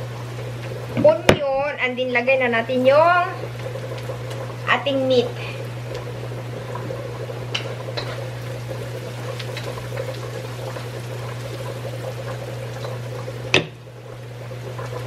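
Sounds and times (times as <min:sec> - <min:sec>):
onion and garlic sizzling in oil: 0:00.0 - 0:06.6, 0:07.3 - 0:15.0.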